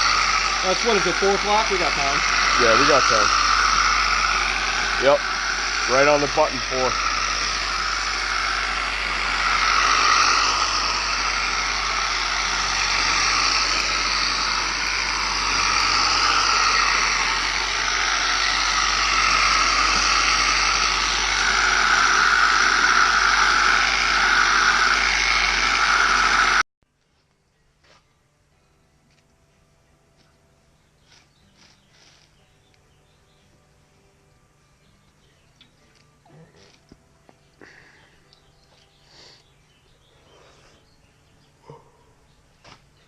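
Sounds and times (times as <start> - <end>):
electric buffer polishing: 0.0 - 26.6.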